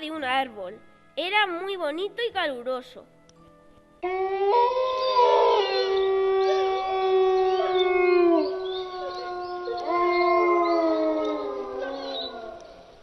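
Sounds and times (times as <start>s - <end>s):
wolves howling: 4.0s - 13.0s.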